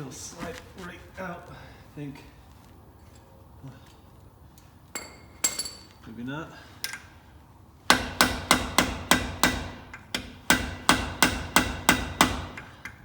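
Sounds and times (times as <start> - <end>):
hammer striking metal: 7.9 - 13.0.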